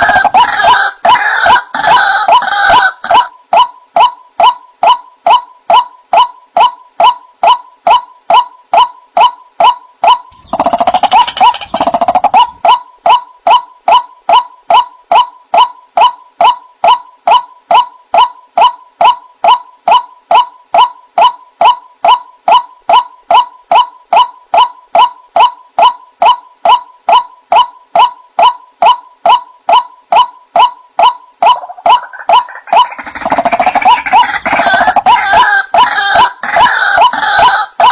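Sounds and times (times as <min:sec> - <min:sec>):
bird ringing call: 0:01.4 - 0:37.9
harsh bird chatter: 0:10.3 - 0:12.6, 0:31.9 - 0:35.6.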